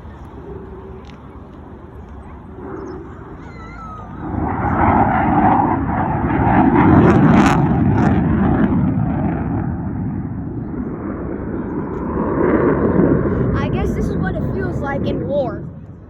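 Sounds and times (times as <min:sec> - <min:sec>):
fighter jet roar: 0:00.0 - 0:16.0.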